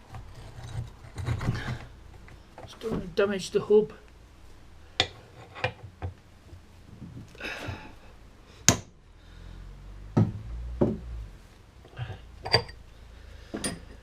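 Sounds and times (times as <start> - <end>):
chisel scraping metal: 0.1 - 1.9, 5.0 - 5.8.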